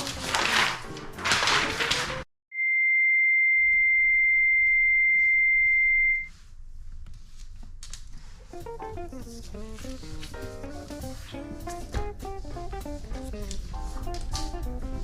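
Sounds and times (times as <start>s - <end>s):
music: 0.0s - 2.3s, 8.4s - 15.0s
high-pitched electronic beep: 2.6s - 6.3s.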